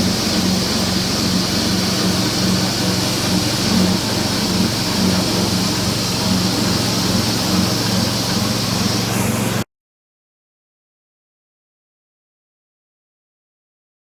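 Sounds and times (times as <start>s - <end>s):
machine humming: 0.0s - 9.6s.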